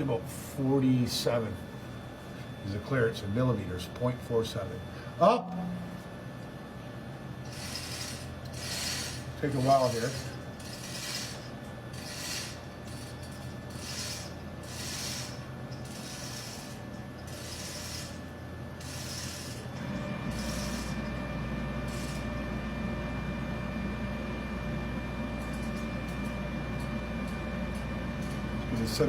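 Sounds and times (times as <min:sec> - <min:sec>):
low machinery hum: 0:00.0 - 0:29.0
chain rattling through ratchet: 0:07.5 - 0:18.2.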